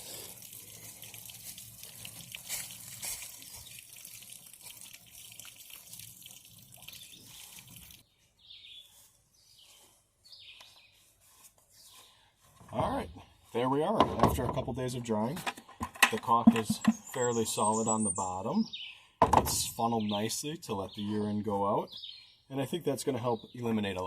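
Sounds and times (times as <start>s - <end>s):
water splashing from a hose: 0.0s - 8.0s.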